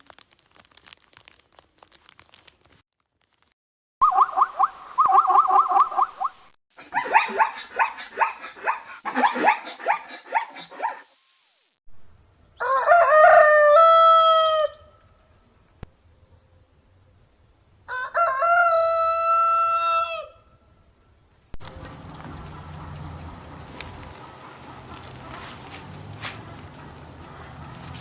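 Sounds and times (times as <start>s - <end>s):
rooster crowing: 12.6s - 14.9s, 17.9s - 20.5s.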